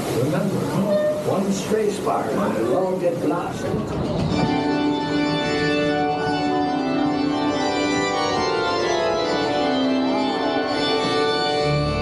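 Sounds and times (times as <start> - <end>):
organ playing held chords: 4.0 - 12.0.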